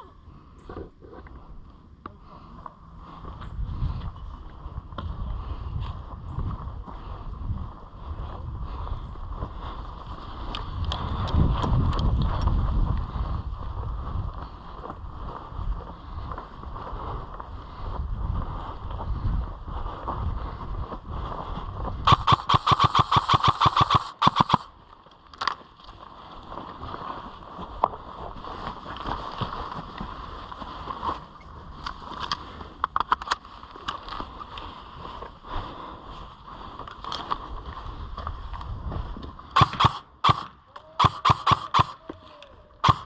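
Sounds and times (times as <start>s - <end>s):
airsoft rifle firing bursts: 22.1s - 24.7s, 39.6s - 42.0s.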